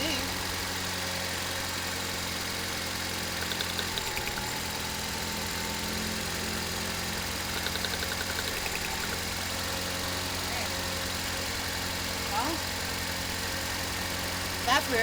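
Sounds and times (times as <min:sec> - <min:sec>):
car engine idling: 0:00.0 - 0:15.0
light rapid ticking: 0:02.9 - 0:04.8, 0:07.0 - 0:09.7.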